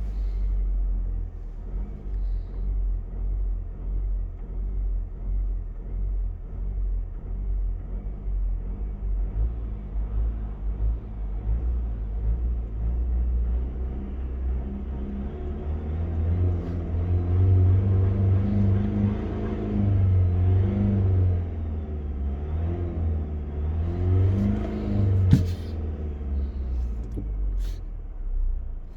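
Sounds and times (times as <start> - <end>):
car engine revving: 8.6 - 27.8.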